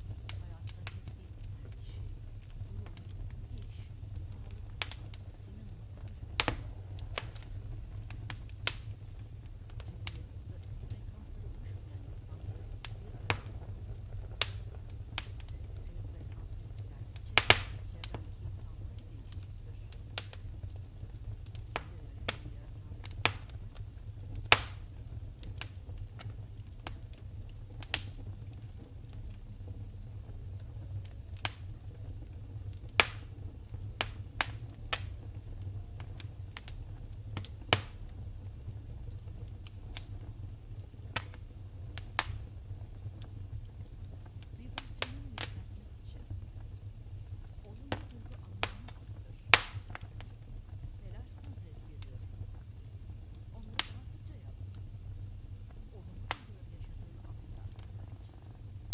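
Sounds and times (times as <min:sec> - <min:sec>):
fire low rumble: 0:00.0 - 0:58.9
wood fire crackling and popping: 0:00.0 - 0:58.9.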